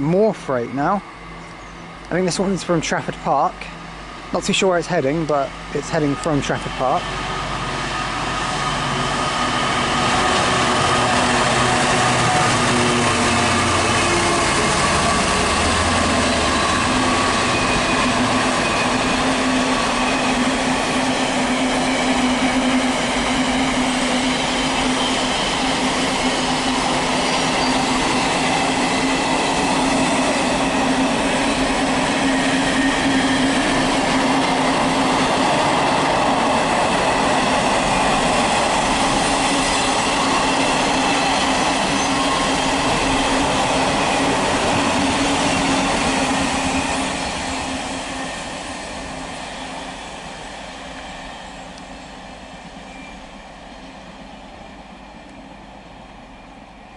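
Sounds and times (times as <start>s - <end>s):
train wagons rolling on rails: 0.0s - 56.9s.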